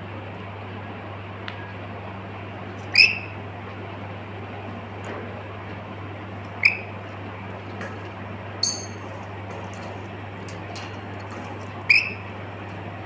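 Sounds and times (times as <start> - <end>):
parrot chirping calls: 2.9 - 3.4, 6.6 - 7.0, 11.9 - 12.3.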